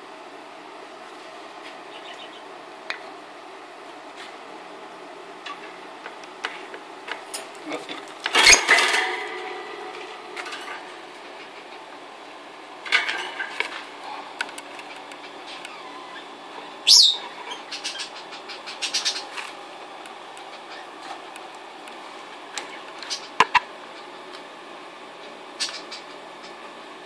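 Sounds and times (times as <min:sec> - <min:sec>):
lovebirds shrill calls: 0:01.9 - 0:02.5, 0:15.4 - 0:19.5.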